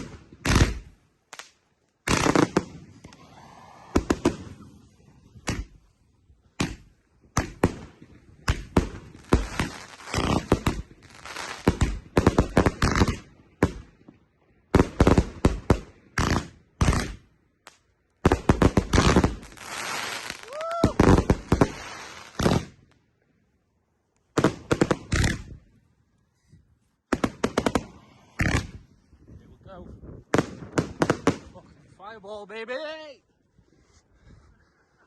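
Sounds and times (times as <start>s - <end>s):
fireworks bangs and crackles: 0.0s - 5.9s, 6.5s - 17.2s, 18.2s - 23.0s, 24.3s - 25.7s, 27.1s - 31.8s.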